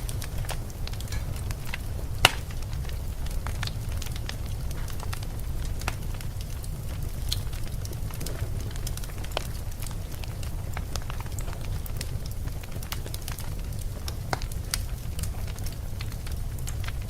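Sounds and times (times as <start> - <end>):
wind rumble: 0.0 - 12.8
fire popping: 0.0 - 17.0
wood fire crackling: 0.0 - 17.0.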